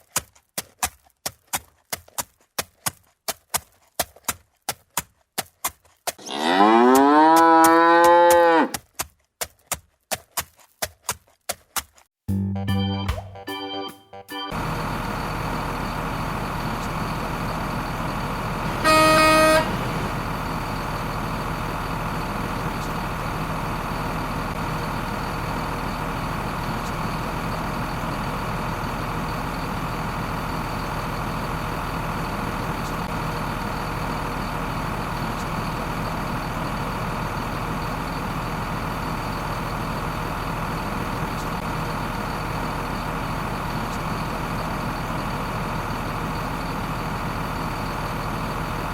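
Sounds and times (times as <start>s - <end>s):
vehicle engine running: 14.5s - 48.9s
horn honk: 18.6s - 20.2s.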